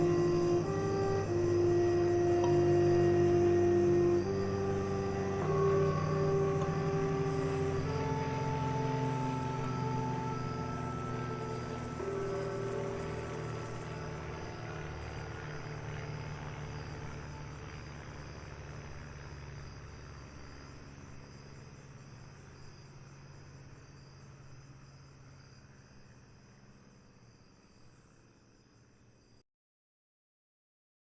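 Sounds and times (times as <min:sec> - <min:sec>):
distant traffic rumble: 0:00.0 - 0:23.8
insect chorus chirring: 0:00.0 - 0:29.4.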